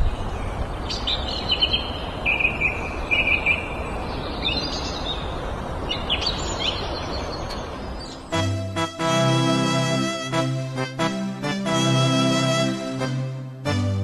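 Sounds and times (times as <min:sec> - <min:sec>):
small birds chirping: 0:00.0 - 0:08.5
steady background noise: 0:00.0 - 0:08.8.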